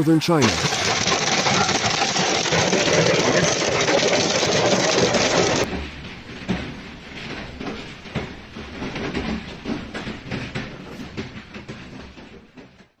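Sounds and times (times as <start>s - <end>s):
hailstones striking hard surface: 0.4s - 5.7s.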